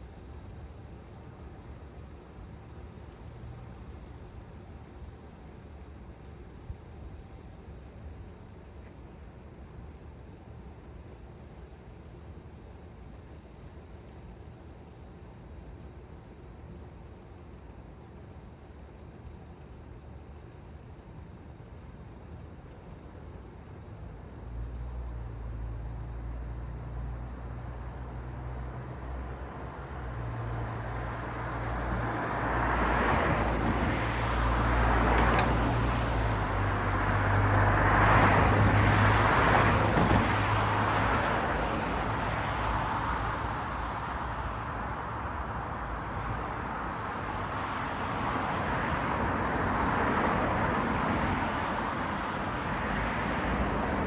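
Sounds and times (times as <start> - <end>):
low engine hum: 0.0 - 54.0
vehicles passing: 25.4 - 54.0.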